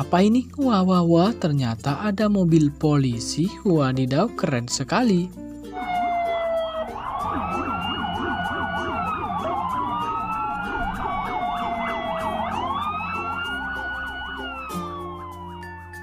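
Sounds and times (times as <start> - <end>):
toy police siren wailing: 5.7 - 16.0.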